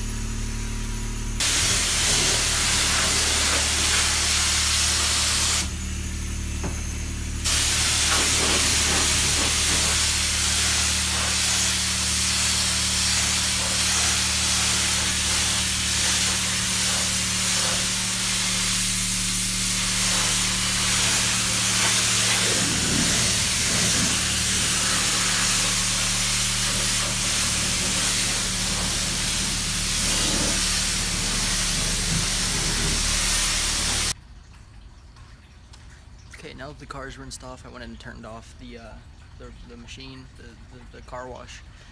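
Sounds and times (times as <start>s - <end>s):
high-pressure water spray hissing: 0.0s - 5.9s, 7.4s - 34.2s
pump humming: 0.0s - 37.0s.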